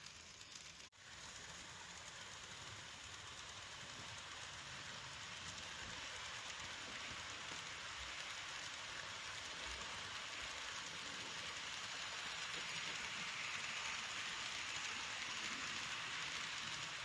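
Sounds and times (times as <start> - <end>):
model train wheels rattling on rail: 0.0 - 17.0.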